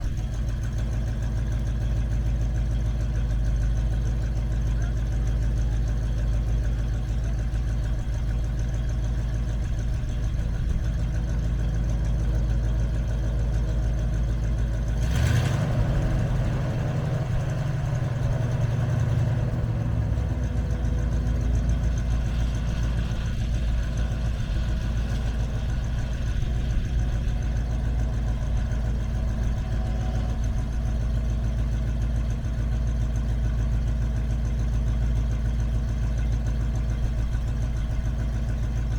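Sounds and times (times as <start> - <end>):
truck engine idling: 0.0 - 38.9
truck engine revving: 11.4 - 32.4.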